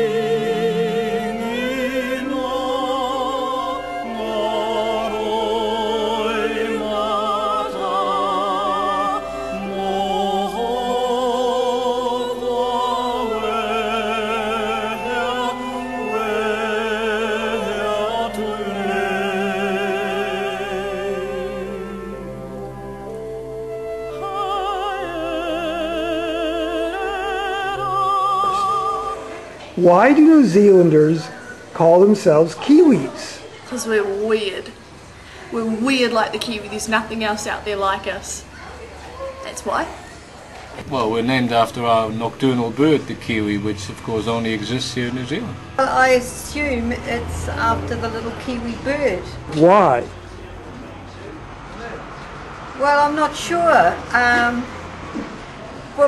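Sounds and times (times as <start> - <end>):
orchestral accompaniment: 0.0 - 31.3
operatic singing: 0.0 - 32.4.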